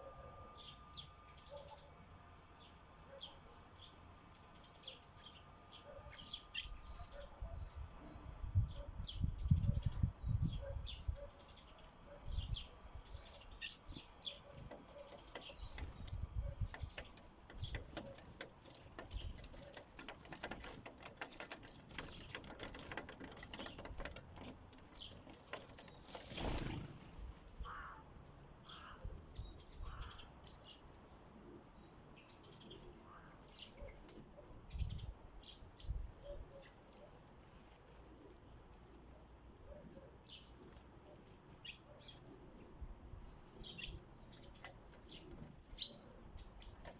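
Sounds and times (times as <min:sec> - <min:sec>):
sparrows chirping: 0:00.0 - 0:46.9
tapping clicks of pecking: 0:14.6 - 0:25.9.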